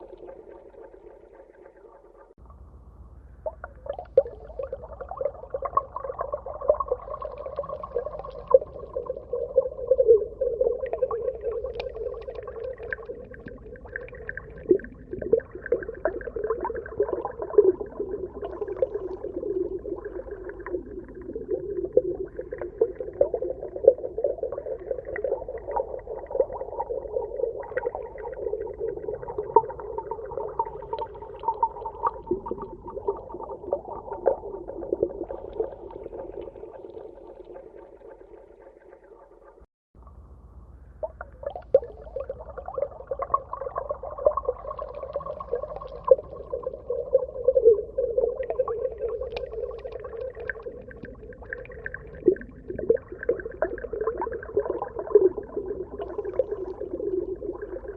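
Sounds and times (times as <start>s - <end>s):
small underwater crackles: 0.0s - 2.7s, 3.4s - 40.2s, 41.0s - 57.9s
muffled underwater drone: 0.0s - 57.9s.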